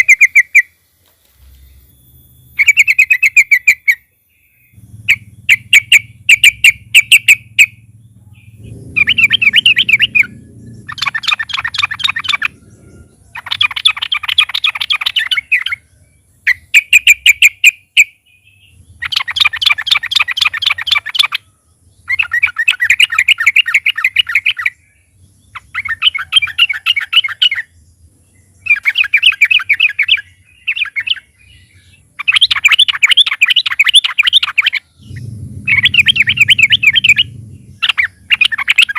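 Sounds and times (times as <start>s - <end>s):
bulbul chattering song: 0.0s - 38.9s
faint low hum: 0.7s - 17.4s, 34.4s - 38.9s.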